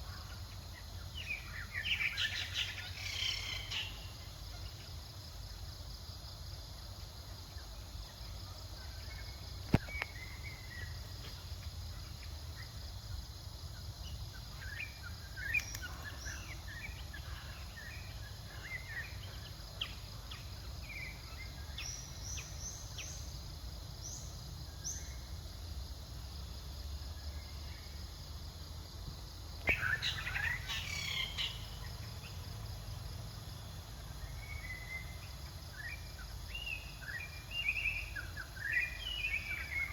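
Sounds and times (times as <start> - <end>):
insect drone: 0.0 - 39.9
bird chirps: 14.0 - 23.4, 29.6 - 32.4.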